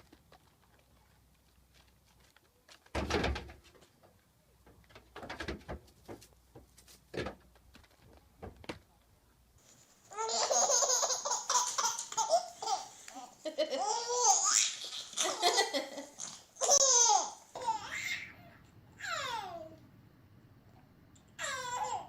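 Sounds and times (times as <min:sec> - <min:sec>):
baby laughing: 0:10.1 - 0:18.4, 0:21.4 - 0:22.0.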